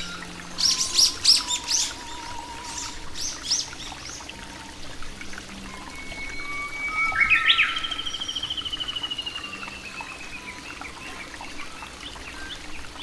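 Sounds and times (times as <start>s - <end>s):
songbird trilling: 0.0s - 4.3s, 5.7s - 11.7s
faint bird chirps: 5.6s - 13.0s.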